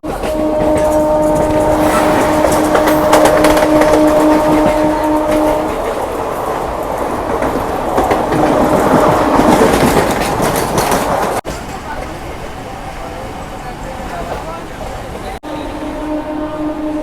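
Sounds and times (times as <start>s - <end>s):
train rumble: 0.0s - 17.0s
steady pitched tone: 1.1s - 4.7s
train wheels clicking over rail joints: 2.5s - 12.2s.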